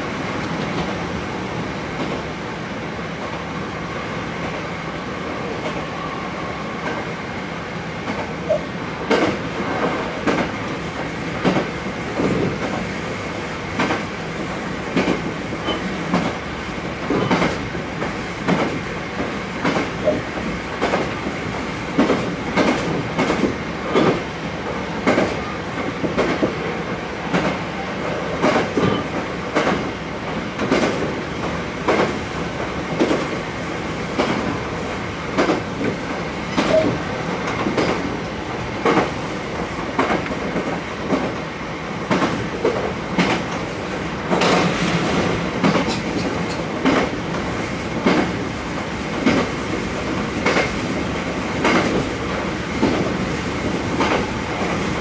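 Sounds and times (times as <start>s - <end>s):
train rumbling: 0.0s - 55.0s
train wheels clicking over rail joints: 8.0s - 12.9s, 13.7s - 14.2s, 14.8s - 26.6s, 28.4s - 33.4s, 34.1s - 34.7s, 35.3s - 55.0s.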